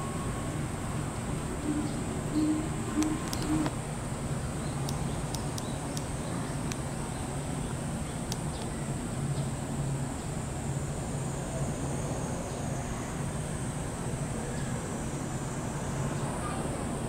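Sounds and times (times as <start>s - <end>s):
high-pitched whine: 0.0s - 3.8s
steady low hum: 0.0s - 17.0s
bird calling low notes: 1.6s - 3.7s.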